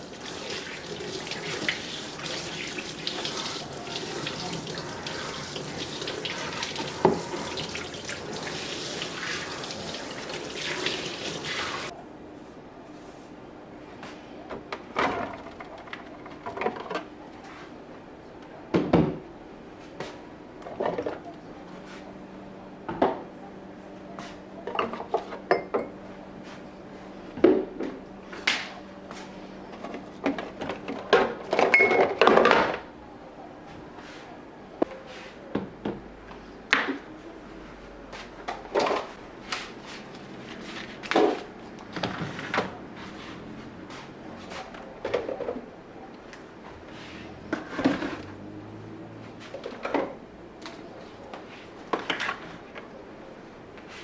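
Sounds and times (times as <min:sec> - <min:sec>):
kitchen items knocking and clattering: 0:29.7 - 0:32.9, 0:47.5 - 0:48.4.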